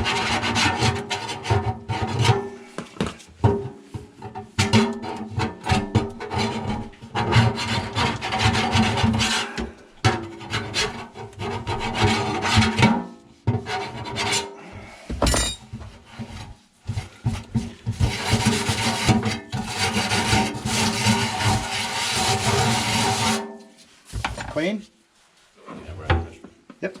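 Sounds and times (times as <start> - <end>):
hand scrubbing a surface: 24.8 - 25.6.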